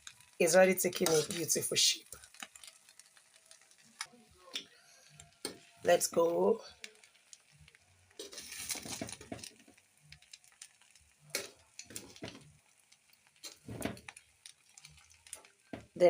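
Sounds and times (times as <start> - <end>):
spoon scraping rice in pot: 0.9 - 1.4, 8.2 - 9.3.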